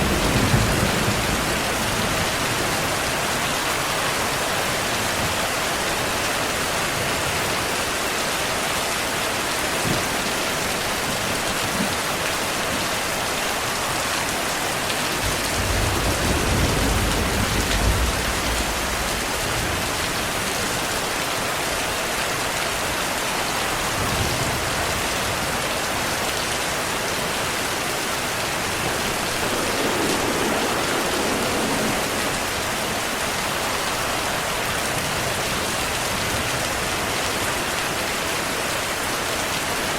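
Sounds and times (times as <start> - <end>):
thunder rumbling: 0.0 - 6.1, 13.0 - 21.2, 22.4 - 36.9
heavy rain: 0.0 - 39.9.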